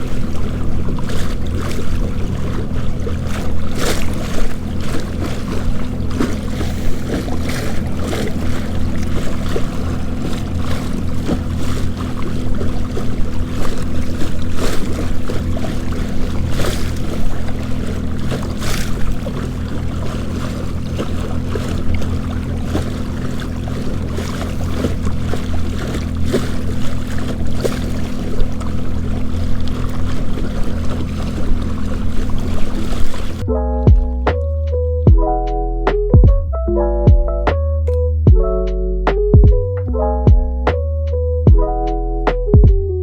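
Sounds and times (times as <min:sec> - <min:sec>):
waves slapping a kayak hull: 0:00.0 - 0:34.4
low hum: 0:00.0 - 0:43.0.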